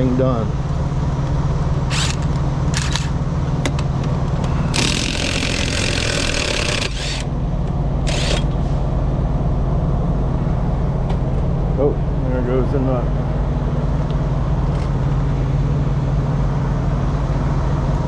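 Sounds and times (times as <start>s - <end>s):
engine idling: 0.0s - 18.0s
impact wrench bursts: 1.9s - 3.2s, 4.6s - 7.3s, 8.0s - 8.6s.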